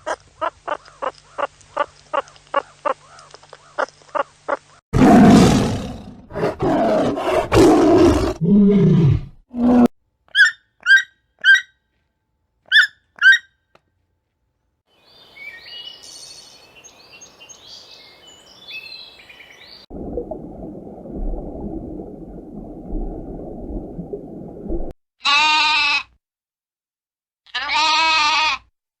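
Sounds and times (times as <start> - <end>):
loud bleats: 25.2 - 26.2, 27.5 - 28.7.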